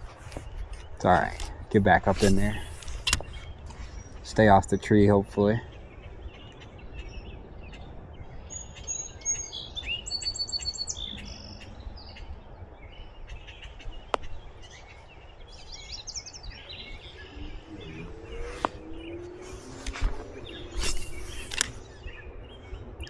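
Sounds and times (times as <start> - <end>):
songbirds chirping: 0.0 - 23.0
sharp click: 1.1 - 3.5, 20.8 - 21.9.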